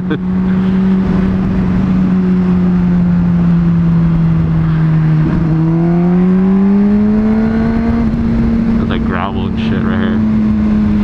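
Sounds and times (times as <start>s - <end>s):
motorcycle engine cruising: 0.0s - 11.0s
wind rumble on microphone: 0.0s - 11.0s.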